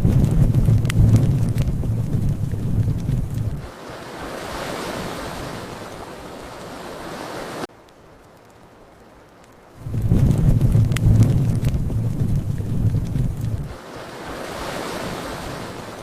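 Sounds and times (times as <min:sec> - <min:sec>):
steady rushing noise: 0:00.0 - 0:07.7, 0:09.8 - 0:16.0
fire crackling and roaring: 0:00.0 - 0:16.0.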